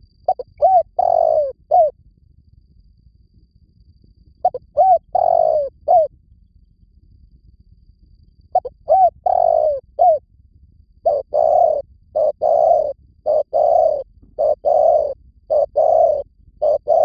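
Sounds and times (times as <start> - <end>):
dove cooing: 0.3 - 1.9, 4.4 - 6.1, 8.6 - 10.2, 11.0 - 17.0.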